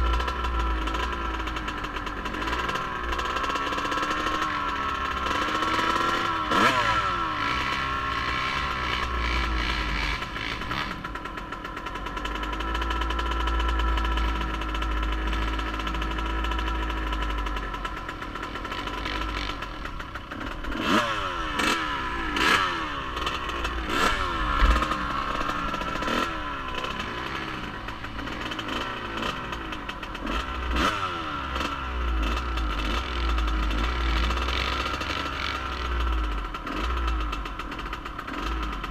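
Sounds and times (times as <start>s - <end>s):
off-road vehicle engine revving: 0.0s - 38.9s.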